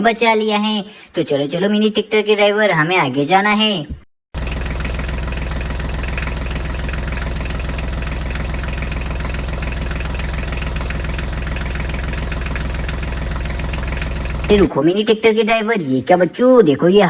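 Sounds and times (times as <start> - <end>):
tractor engine idling: 4.4 - 14.8.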